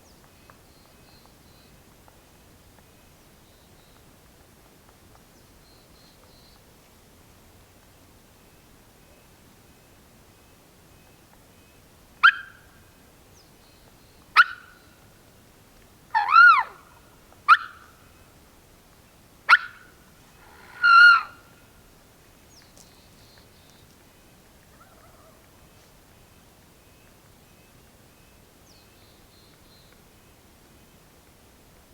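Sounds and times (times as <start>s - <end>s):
turkey calling: 16.1s - 17.9s, 19.5s - 21.5s, 24.7s - 25.4s.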